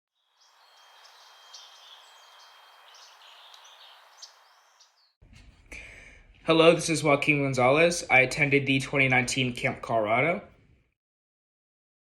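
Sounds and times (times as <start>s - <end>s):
birds chirping and trilling: 0.2s - 5.2s.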